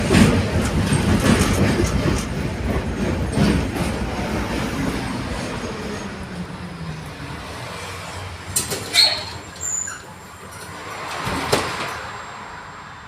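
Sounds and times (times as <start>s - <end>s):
wheels knocking over rail joints: 0.0s - 4.0s
tram rolling on rails: 0.0s - 13.0s
wheel squeal: 8.6s - 10.8s.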